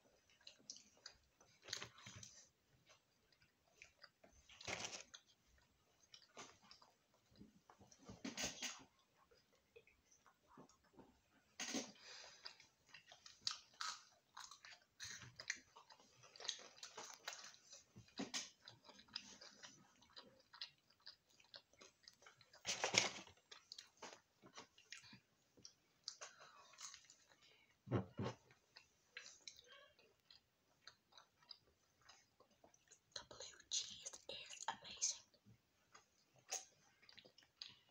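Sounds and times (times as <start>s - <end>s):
people chewing and crunching food: 0.0s - 37.9s.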